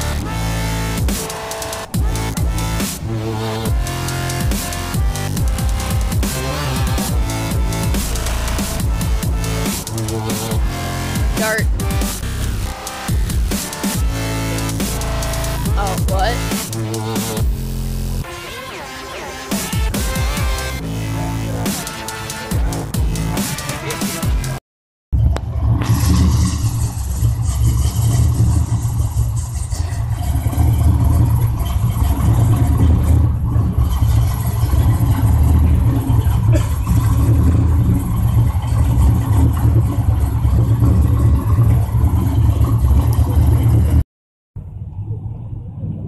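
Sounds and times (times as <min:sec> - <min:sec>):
car engine low rumble: 0:01.9 - 0:18.2, 0:25.2 - 0:44.0.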